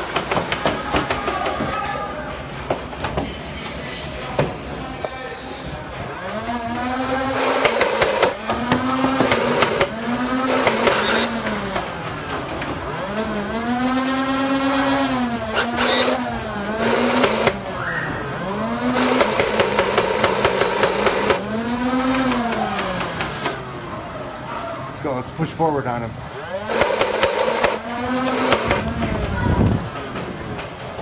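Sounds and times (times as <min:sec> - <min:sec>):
toy blaster flywheel whine: 0:13.0 - 0:23.0.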